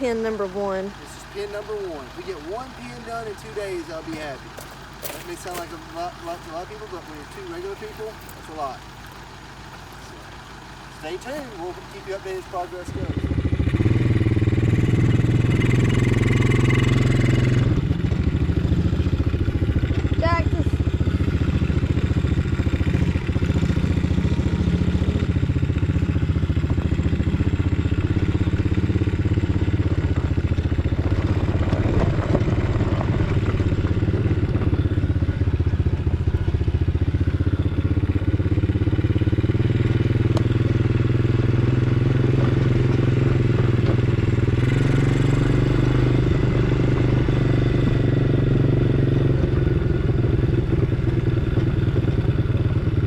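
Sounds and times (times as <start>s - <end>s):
engine running: 0.0s - 53.0s
clatter: 28.0s - 37.4s.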